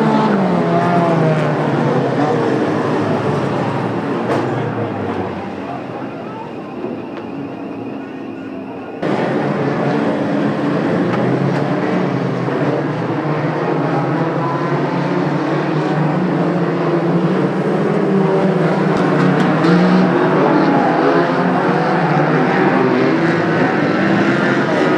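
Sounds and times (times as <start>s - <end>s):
racing car engines drone: 0.0s - 24.9s.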